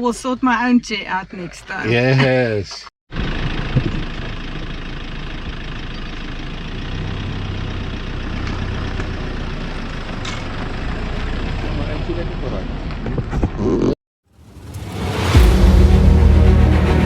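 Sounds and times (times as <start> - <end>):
vehicle engine running: 3.1 - 13.2.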